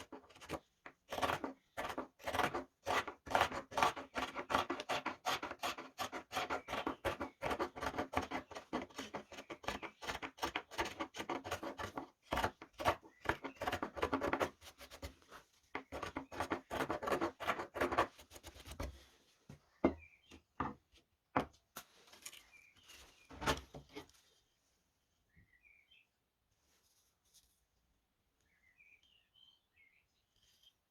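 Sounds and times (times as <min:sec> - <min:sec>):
gouges scraping wood: 0:00.0 - 0:19.1
faint bird chirps: 0:24.4 - 0:26.2, 0:28.4 - 0:30.9.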